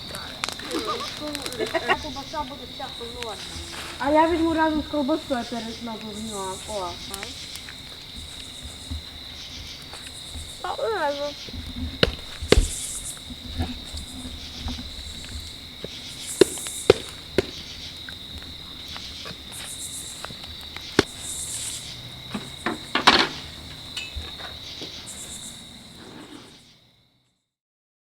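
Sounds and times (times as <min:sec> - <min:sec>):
bonfire popping and cracking: 0:00.0 - 0:25.1
night insects chirring: 0:00.0 - 0:27.6.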